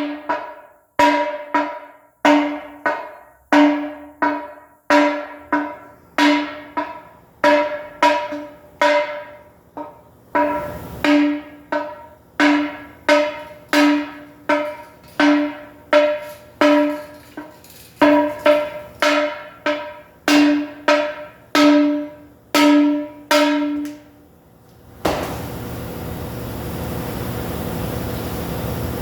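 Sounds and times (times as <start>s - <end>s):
hammer striking metal rim: 0.0s - 24.2s, 25.0s - 25.7s.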